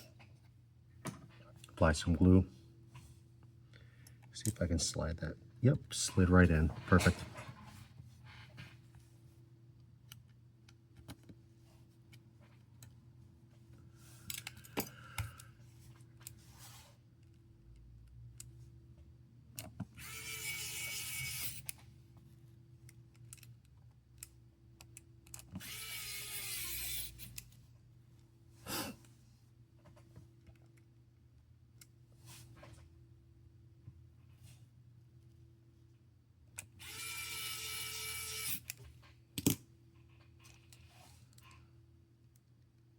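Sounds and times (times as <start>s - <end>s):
small power tool running: 36.8s - 38.6s
clicks and taps of tools: 39.4s - 39.6s.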